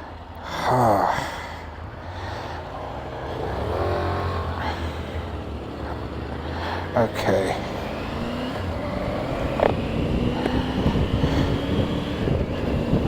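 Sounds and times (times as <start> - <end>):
vehicle passing loudly: 2.2 - 13.0
motorcycle engine accelerating: 2.8 - 13.0.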